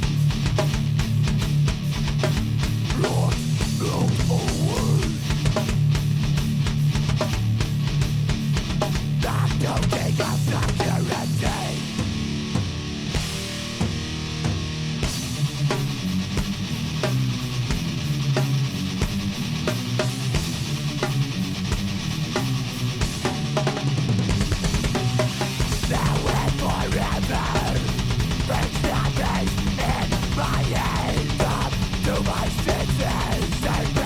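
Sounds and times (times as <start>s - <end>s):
double-bass kick drumming: 0.0s - 15.4s, 24.2s - 34.0s
heavy metal music: 0.0s - 34.0s.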